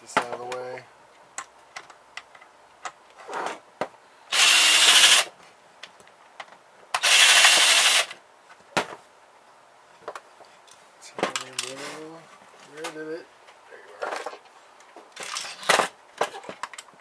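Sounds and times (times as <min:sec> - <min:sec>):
cordless drill running: 0:04.3 - 0:05.3, 0:07.0 - 0:08.2.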